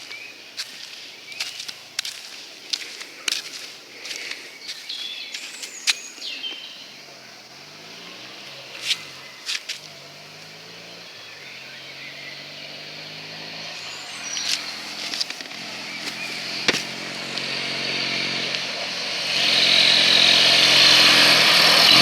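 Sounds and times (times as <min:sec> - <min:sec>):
low engine-like hum: 0:06.2 - 0:19.1.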